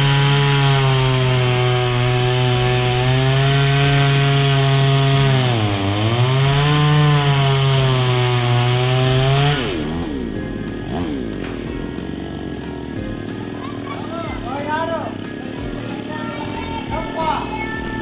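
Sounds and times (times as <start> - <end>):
chainsaw cutting wood: 0.0 - 17.4.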